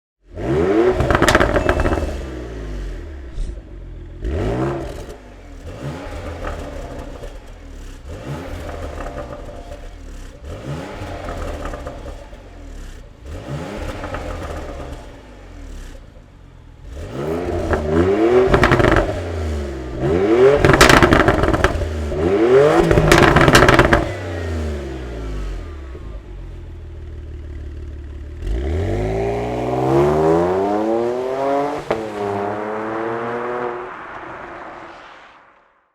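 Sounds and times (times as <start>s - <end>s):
car engine revving: 0.3s - 26.6s, 28.2s - 35.6s
car engine idling: 25.0s - 28.5s.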